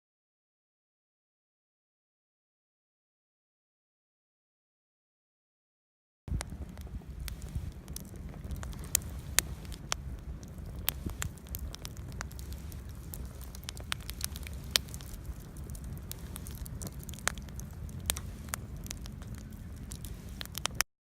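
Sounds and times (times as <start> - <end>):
wood fire crackling: 6.3 - 20.9.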